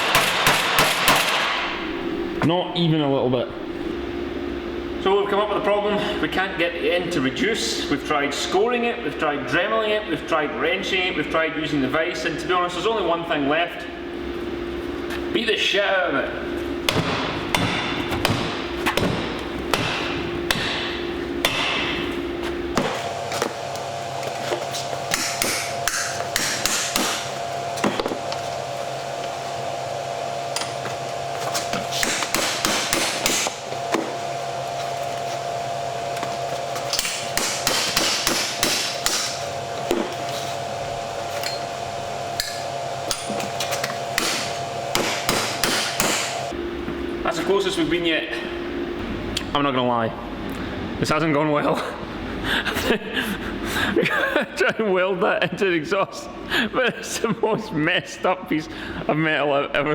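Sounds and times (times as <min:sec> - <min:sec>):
hammer striking metal pipe: 0:19.8 - 0:22.0, 0:25.1 - 0:27.3, 0:32.0 - 0:33.6, 0:36.9 - 0:40.1, 0:42.4 - 0:43.5, 0:44.2 - 0:46.4.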